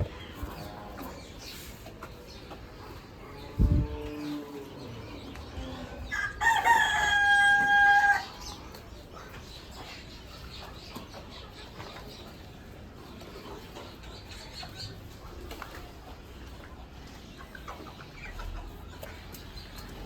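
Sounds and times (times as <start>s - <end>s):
rooster crowing: 6.1s - 8.2s.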